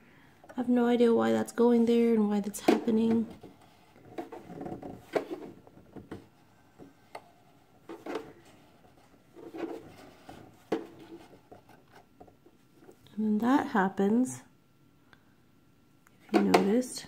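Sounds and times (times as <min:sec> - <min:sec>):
soft rubbing of thread: 0:03.3 - 0:13.0.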